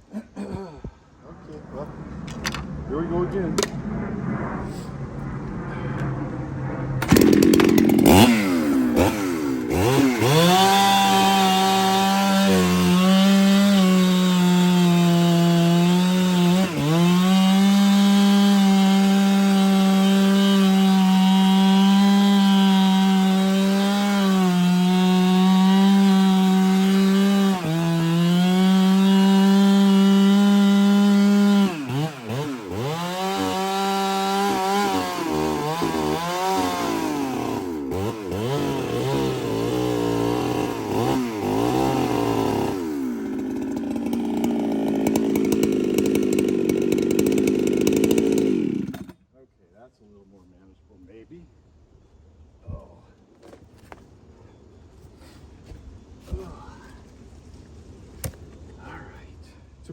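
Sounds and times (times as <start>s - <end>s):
chainsaw revving and cutting: 7.0s - 49.2s.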